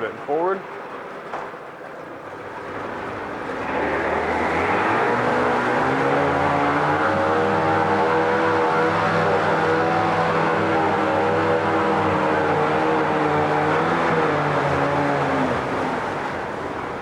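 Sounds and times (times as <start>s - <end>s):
outboard motor running: 2.2s - 17.0s.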